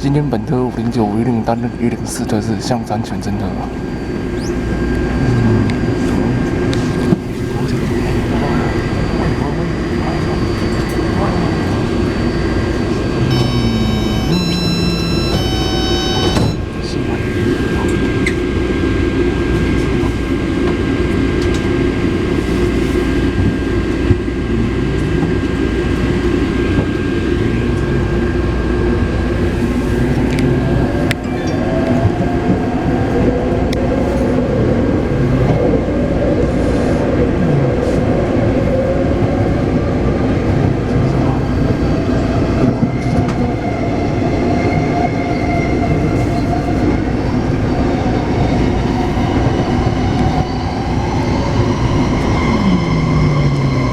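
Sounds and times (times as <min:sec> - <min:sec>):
train rumbling on rails: 0:00.0 - 0:53.9
traction motor whine: 0:12.0 - 0:16.9
electronic chime: 0:13.3 - 0:16.7.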